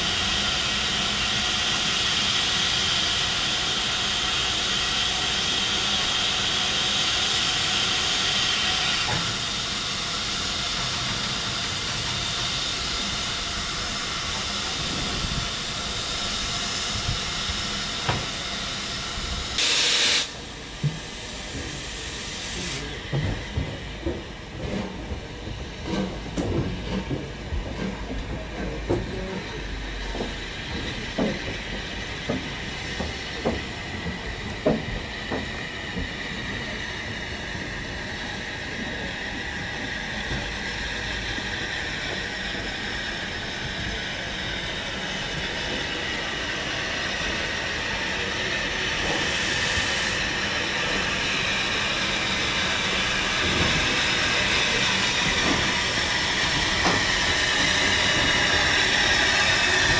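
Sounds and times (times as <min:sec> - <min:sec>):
steam train running: 0:00.0 - 0:59.9.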